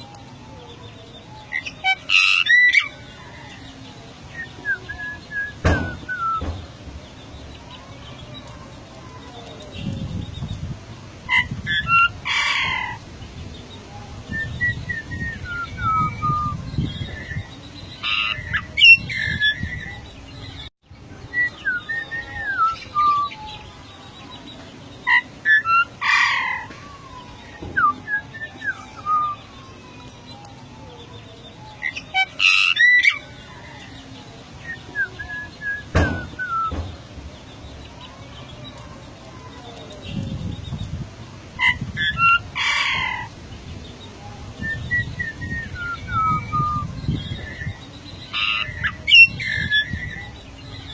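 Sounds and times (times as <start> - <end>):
bird whistling: 4.4 - 6.5, 34.7 - 36.8.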